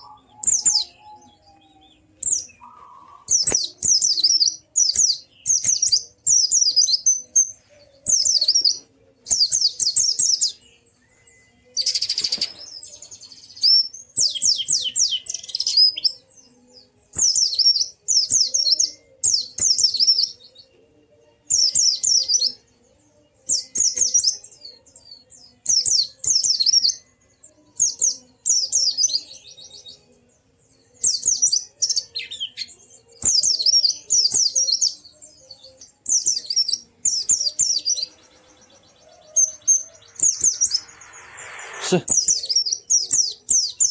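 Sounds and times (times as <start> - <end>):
bird twittering song: 0.0 - 20.7, 21.5 - 27.0, 27.8 - 43.9
harsh hissing burst: 38.0 - 42.7.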